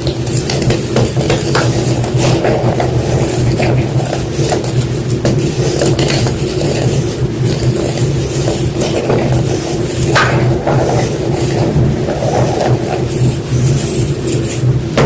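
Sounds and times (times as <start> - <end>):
steady low hum: 0.0 - 15.0
chalk crunching and crumbling: 0.2 - 15.0.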